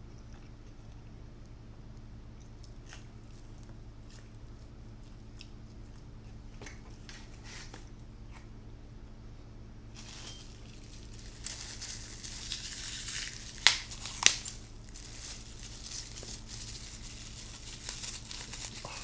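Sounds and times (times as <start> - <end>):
food packaging crinkling: 9.9 - 19.0.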